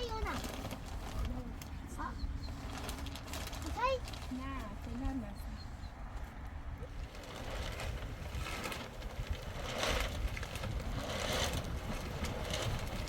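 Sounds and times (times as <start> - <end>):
wind buffeting microphone: 0.0 - 13.0
wind gusts rushing: 5.2 - 13.0.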